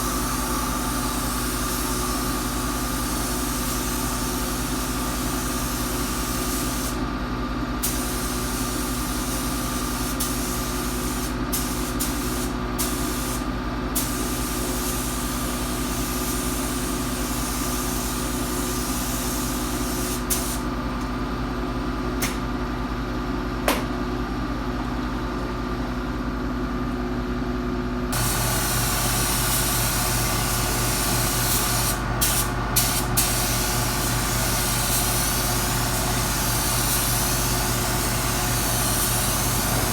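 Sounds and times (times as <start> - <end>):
paint spray gun hissing: 0.0 - 7.0, 7.8 - 13.4, 14.0 - 20.6, 28.2 - 39.9
machine hum: 28.2 - 39.9.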